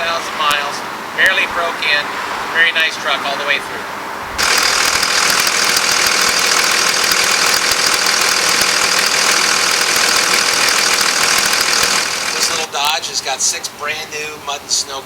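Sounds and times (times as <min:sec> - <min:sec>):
diesel engine idling: 0:04.4 - 0:12.8.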